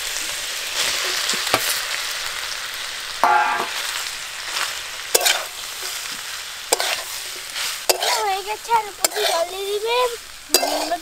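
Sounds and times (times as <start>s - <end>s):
food sizzling in a pan: 0.0s - 11.0s
sharp knock: 3.2s - 3.8s
spatula scraping a metal pan: 5.1s - 9.5s, 10.5s - 11.0s.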